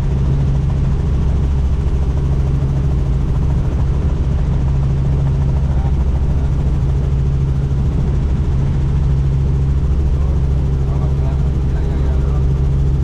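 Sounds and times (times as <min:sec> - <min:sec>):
helicopter rotor and engine drone: 0:00.0 - 0:13.0.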